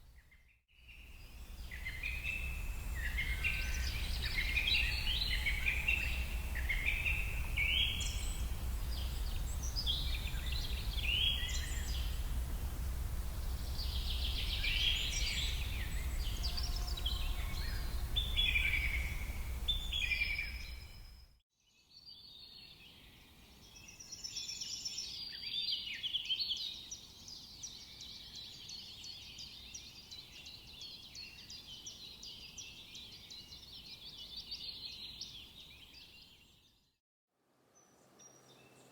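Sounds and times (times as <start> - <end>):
songbirds chirping: 0.0 - 21.1, 21.7 - 36.8
low outdoor rumble: 1.5 - 21.0.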